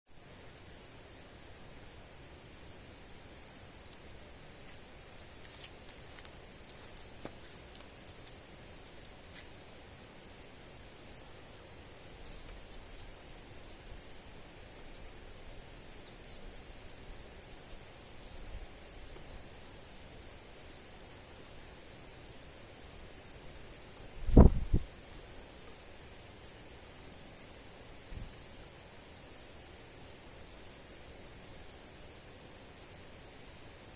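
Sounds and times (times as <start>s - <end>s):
faint steady hiss: 0.1s - 33.9s
birds chirping: 0.2s - 24.7s.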